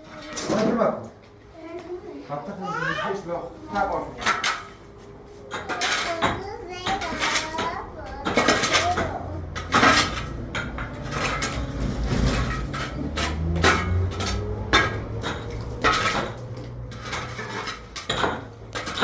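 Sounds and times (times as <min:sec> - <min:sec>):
dishes and cutlery clinking: 0:04.1 - 0:19.0
low hum: 0:08.9 - 0:18.1.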